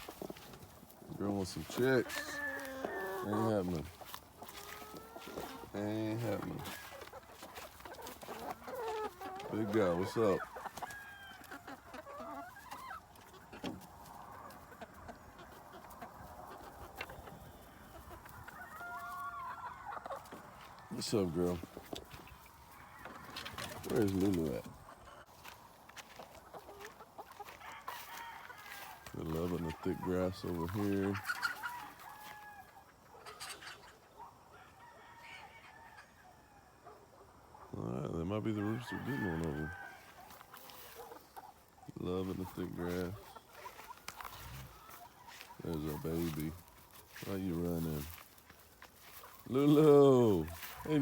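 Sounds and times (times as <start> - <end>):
chickens clucking: 0.0 - 51.0.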